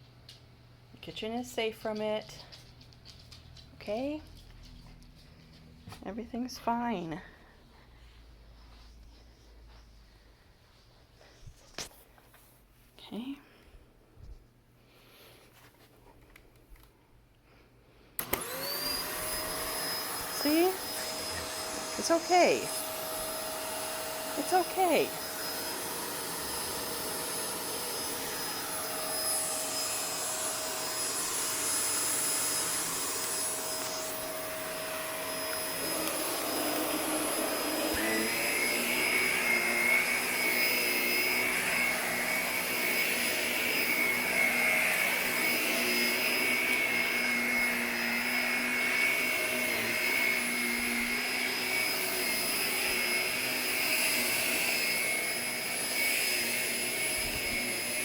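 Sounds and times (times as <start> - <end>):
vacuum cleaner running: 18.2 - 58.0.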